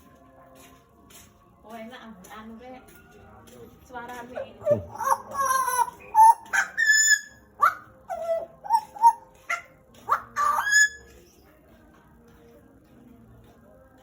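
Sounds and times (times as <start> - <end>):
bird singing whistled notes: 4.7 - 11.6.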